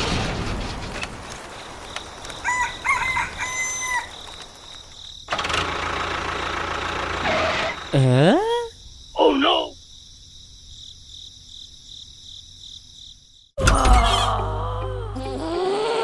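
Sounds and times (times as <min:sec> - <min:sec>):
rooster crowing: 0:02.3 - 0:04.6.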